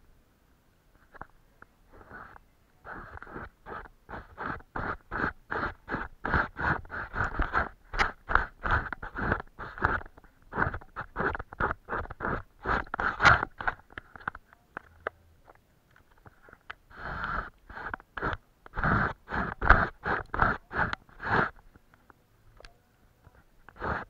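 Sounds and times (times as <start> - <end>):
paintbrush scratching across surface: 1.9 - 13.9, 16.9 - 21.6, 23.7 - 24.0.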